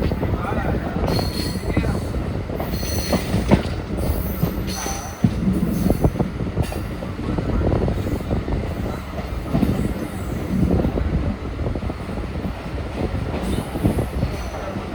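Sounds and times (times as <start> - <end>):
rail knocks and clatter: 0.0 - 11.1
train wheels rumbling on track: 0.0 - 14.9.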